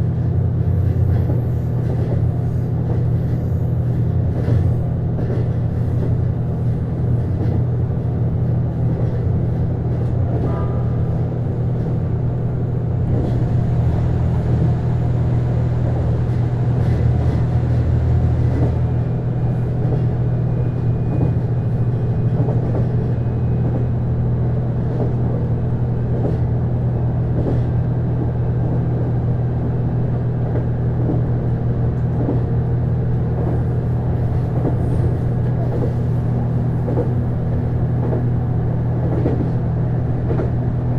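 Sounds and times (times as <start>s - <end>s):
train wheels rolling on rails: 0.0s - 40.9s
diesel engine drone: 9.4s - 26.0s.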